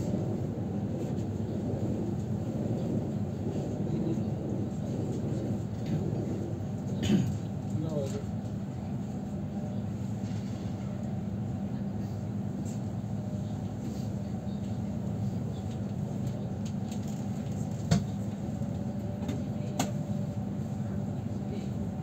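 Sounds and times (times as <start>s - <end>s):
train interior rumble: 0.0s - 22.0s.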